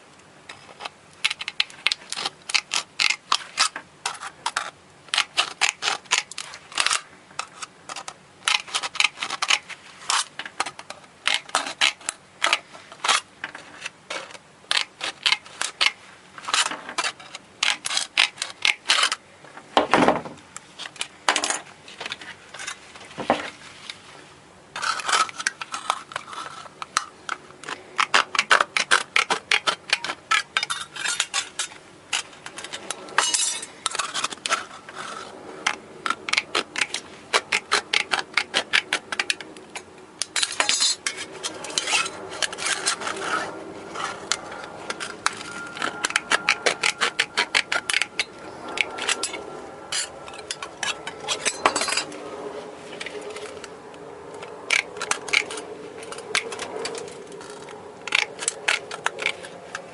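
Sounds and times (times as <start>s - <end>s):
small metal parts clinking: 28.1s - 34.6s, 40.2s - 52.1s.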